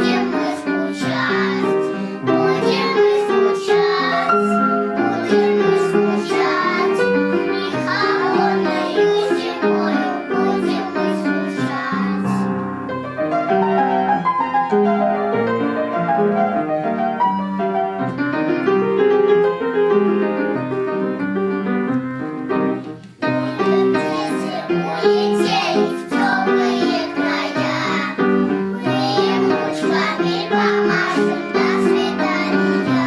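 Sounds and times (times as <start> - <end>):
children's choir singing: 0.0 - 12.9, 23.2 - 33.0
piano accompaniment: 0.0 - 33.0.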